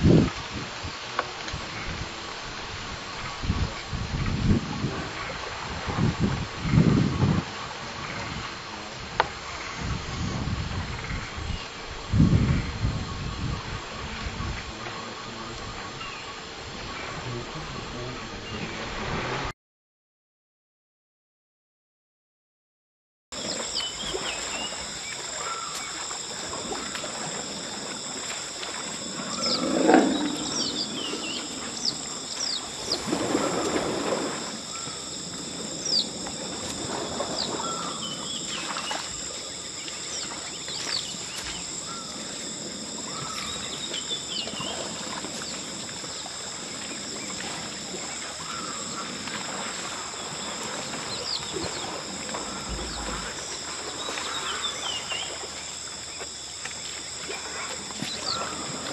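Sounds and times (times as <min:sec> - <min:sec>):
high insect drone: 0:00.0 - 0:19.0, 0:23.4 - 0:58.9
elephant low call: 0:23.5 - 0:39.3, 0:47.6 - 0:55.2.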